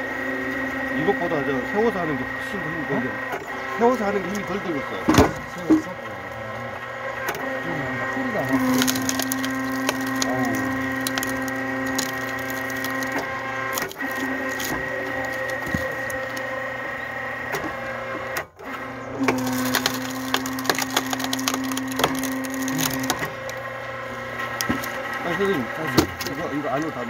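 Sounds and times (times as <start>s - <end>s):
hydraulic pump humming: 0.0s - 27.0s
log crackling and splitting: 3.2s - 6.0s, 8.2s - 27.0s.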